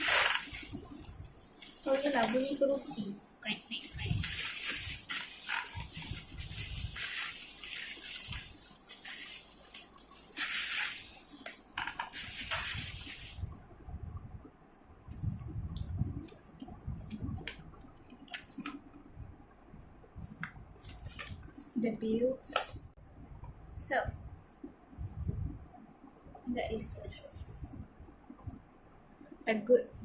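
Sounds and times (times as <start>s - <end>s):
parcel packaging crinkling: 0.0s - 2.9s, 3.7s - 13.4s.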